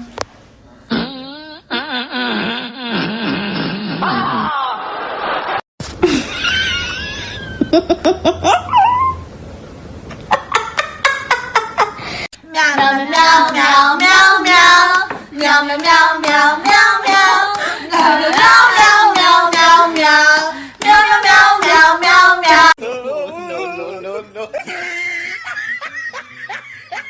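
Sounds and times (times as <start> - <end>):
person singing with vibrato: 16.5 - 27.0.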